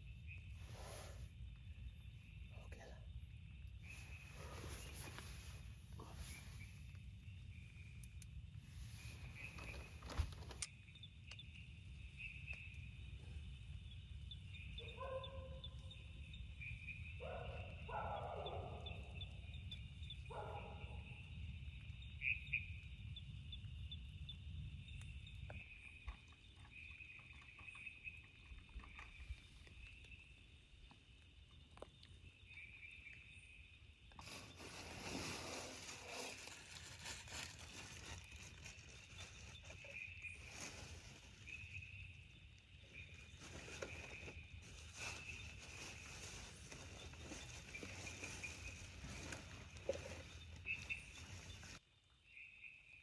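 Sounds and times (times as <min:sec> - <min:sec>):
insects chirping: 0:00.0 - 0:53.0
hiss with light patter: 0:00.5 - 0:01.5, 0:03.8 - 0:07.2, 0:34.2 - 0:41.8.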